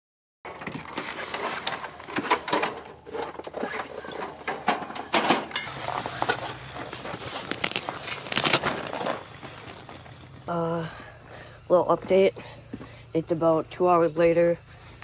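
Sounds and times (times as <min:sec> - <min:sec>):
objects being handled: 0:00.5 - 0:10.4
low steady hum: 0:00.5 - 0:15.0.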